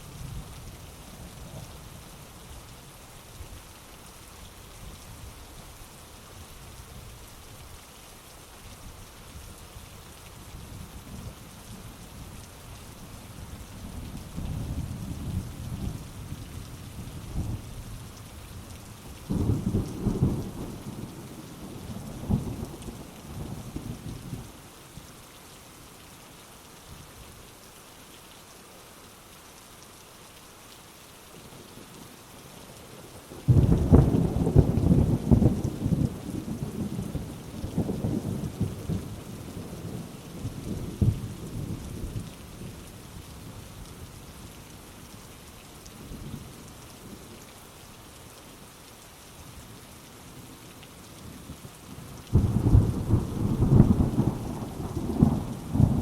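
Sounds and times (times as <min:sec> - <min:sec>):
heavy rain falling: 0:00.0 - 0:56.0
thunder rumbling and cracking: 0:52.3 - 0:56.0.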